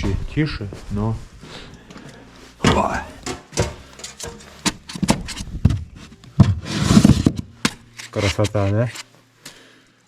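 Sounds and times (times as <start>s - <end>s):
rubbing and scraping: 2.1s - 9.1s.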